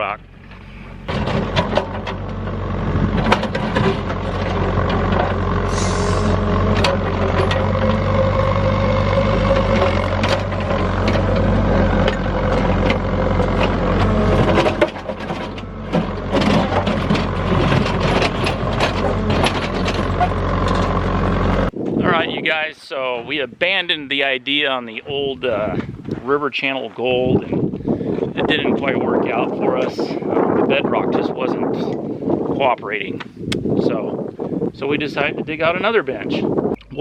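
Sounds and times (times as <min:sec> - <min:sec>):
excavator diesel engine drone: 0:00.0 - 0:22.4
hydraulic whine: 0:00.3 - 0:21.9
knocks and scrapes of digging gravel: 0:00.4 - 0:21.7, 0:25.2 - 0:27.5.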